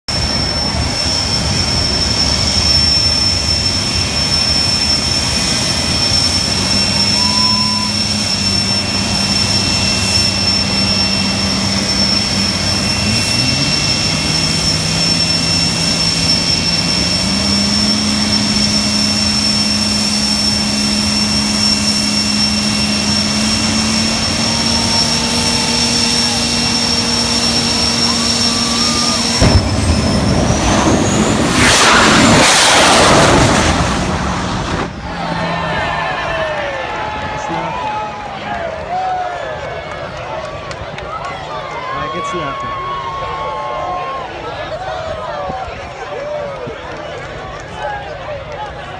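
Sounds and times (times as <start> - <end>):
lower engine hum: 0.1 - 38.8
jet engine roaring with whine: 0.1 - 48.9.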